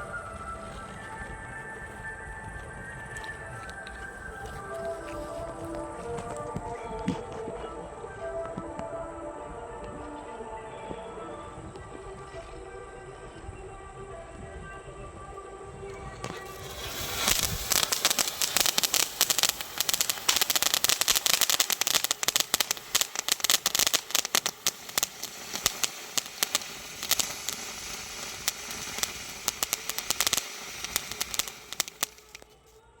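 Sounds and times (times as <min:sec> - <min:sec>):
firework sparks hissing and crackling: 0:00.0 - 0:07.5, 0:16.0 - 0:32.8.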